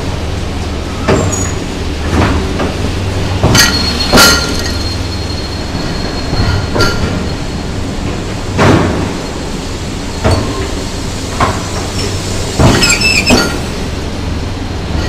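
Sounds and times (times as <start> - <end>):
metallic clanks of train wheels: 0.9 - 14.1
high metallic squeal: 3.6 - 7.6, 12.8 - 13.6.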